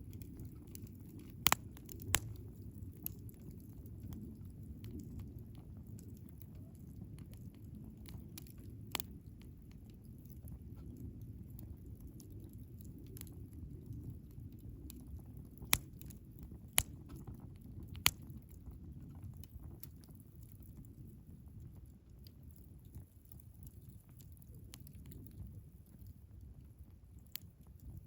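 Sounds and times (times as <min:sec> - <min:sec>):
sharp fire pops: 0:00.0 - 0:05.2, 0:07.2 - 0:09.1, 0:14.8 - 0:20.0
fire crackling: 0:00.0 - 0:28.0
fire flames rumbling: 0:00.0 - 0:28.0.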